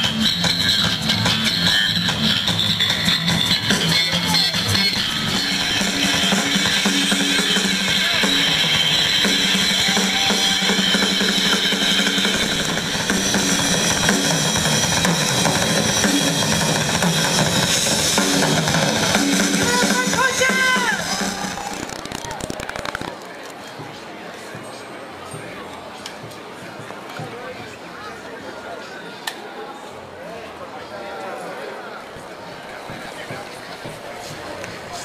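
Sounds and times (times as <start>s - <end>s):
drum kit playing steady beat: 0.0s - 23.0s
held low notes: 4.5s - 19.7s.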